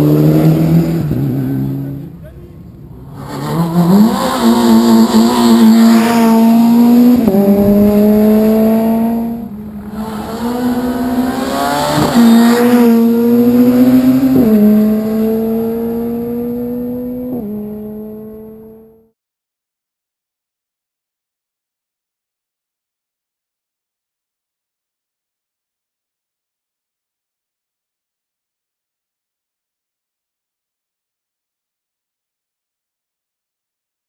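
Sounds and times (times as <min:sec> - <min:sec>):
car engine revving through gears: 0:00.0 - 0:02.1, 0:03.0 - 0:19.1.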